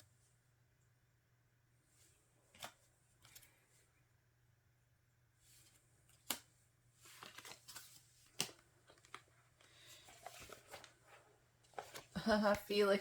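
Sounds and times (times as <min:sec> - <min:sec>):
soft rustling and sliding: 0:06.9 - 0:12.2.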